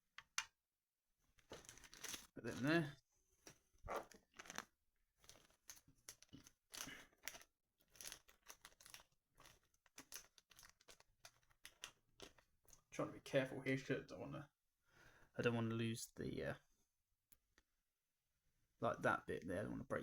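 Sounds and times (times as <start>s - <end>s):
packaging crinkling and tearing: 1.4s - 2.8s, 3.9s - 12.6s.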